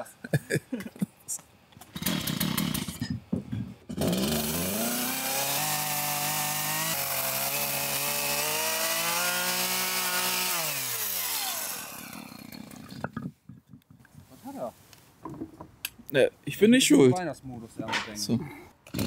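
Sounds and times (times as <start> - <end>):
chainsaw cutting wood: 1.8 - 3.1, 3.9 - 13.3.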